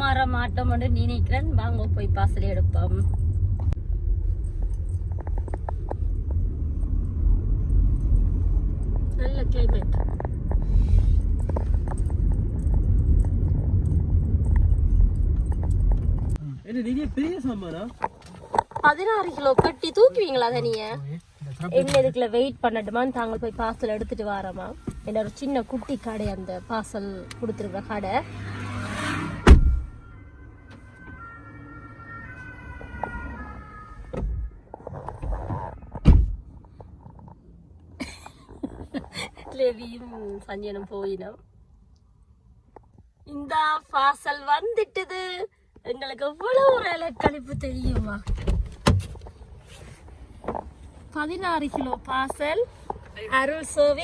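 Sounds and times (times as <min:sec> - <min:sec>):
road and wind noise rumble: 0:00.0 - 0:54.0
two-tone siren wailing: 0:29.9 - 0:34.2.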